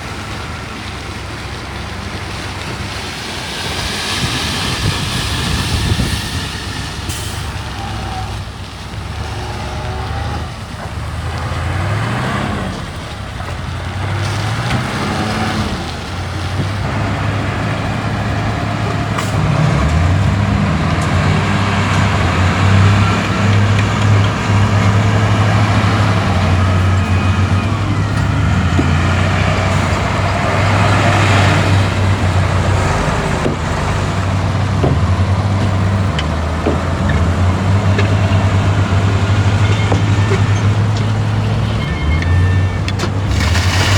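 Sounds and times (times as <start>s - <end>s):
heavy diesel engine revving: 0.0s - 43.9s
hissing noise: 2.8s - 8.8s.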